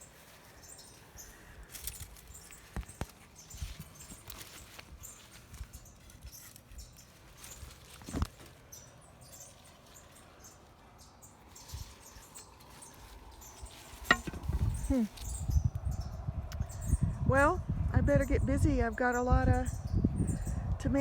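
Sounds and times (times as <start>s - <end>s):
rustling among plants: 0.0s - 15.5s.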